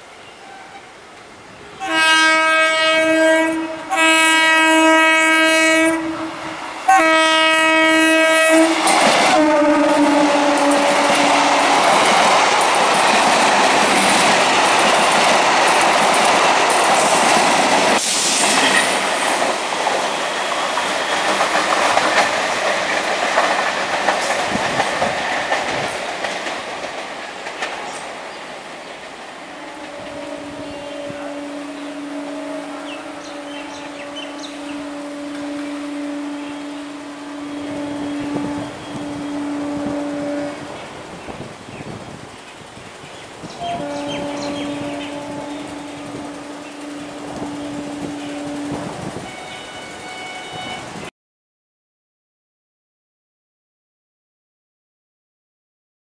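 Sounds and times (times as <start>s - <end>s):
train horn blasts: 1.8s - 12.2s, 29.5s - 40.9s, 43.5s - 51.1s
wheels clattering on rails: 8.8s - 30.0s.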